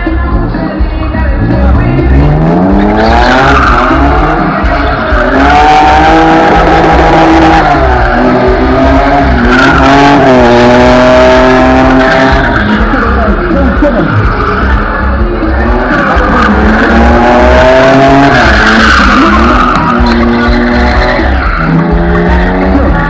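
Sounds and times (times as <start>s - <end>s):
car engine revving: 0.0s - 23.0s
tyres squealing and skidding: 1.8s - 23.0s.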